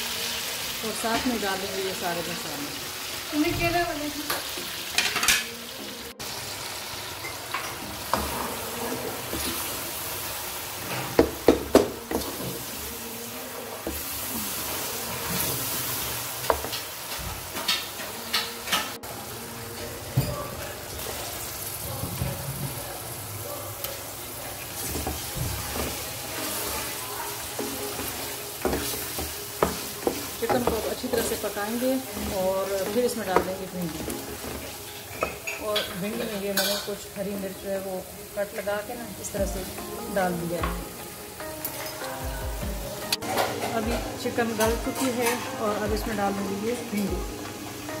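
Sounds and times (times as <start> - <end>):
food sizzling in a pan: 0.0 - 48.0
spoon clacking against pan: 27.5 - 36.9.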